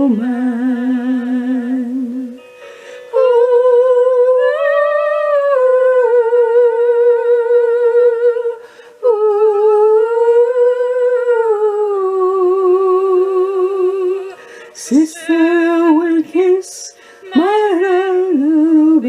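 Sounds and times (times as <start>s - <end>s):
woman singing wordless melody: 0.0s - 19.0s.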